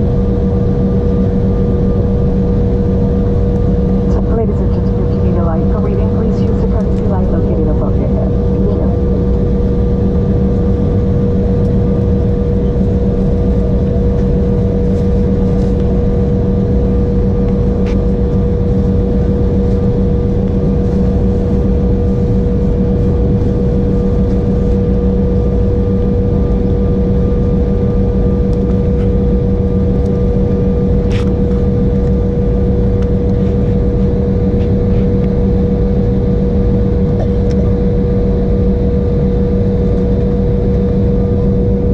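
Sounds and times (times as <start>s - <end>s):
jet engines droning in cabin: 0.0s - 41.9s.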